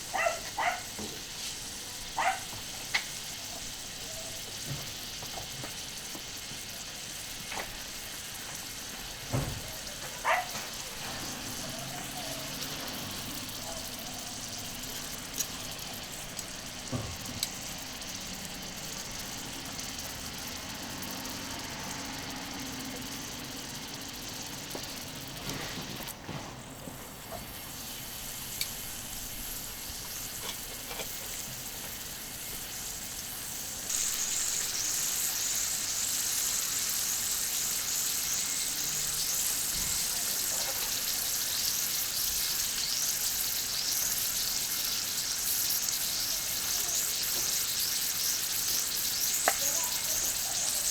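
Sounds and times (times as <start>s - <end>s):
meat sizzling on griddle: 0.0s - 50.9s.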